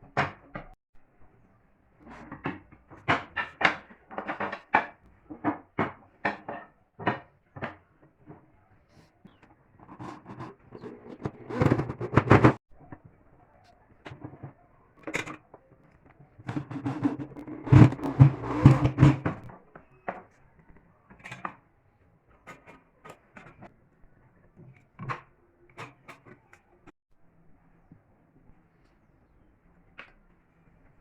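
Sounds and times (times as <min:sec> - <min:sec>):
wood rubbing: 0:09.3 - 0:12.6, 0:16.5 - 0:19.5
wooden parts knocking and clicking: 0:16.5 - 0:20.2.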